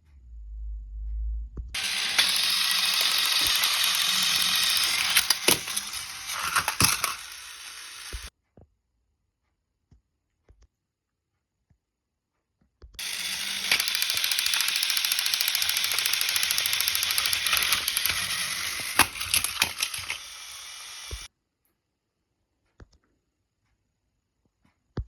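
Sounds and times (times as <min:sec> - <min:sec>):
fast mechanical rattle: 0:01.8 - 0:08.3, 0:13.0 - 0:21.3
sharp clicks: 0:01.8 - 0:08.3, 0:13.0 - 0:21.3.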